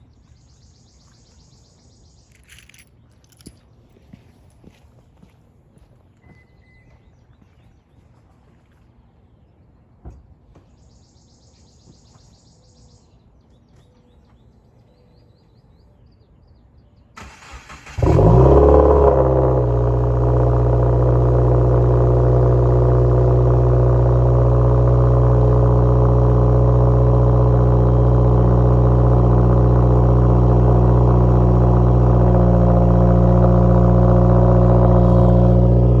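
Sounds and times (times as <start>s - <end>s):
car engine starting and idling: 17.2s - 36.0s.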